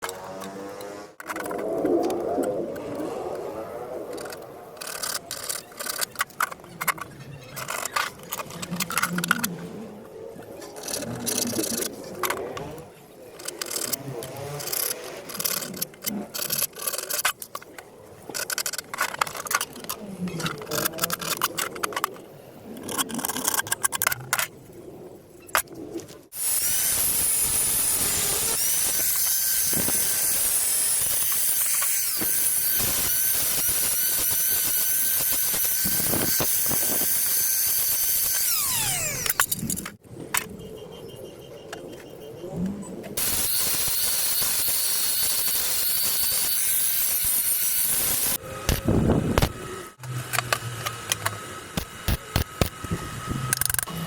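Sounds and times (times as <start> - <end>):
clicks and scrapes: 0.0 - 24.8, 25.4 - 40.6, 41.7 - 54.0
angle grinder cutting steel pipe: 26.4 - 39.8, 43.2 - 54.0.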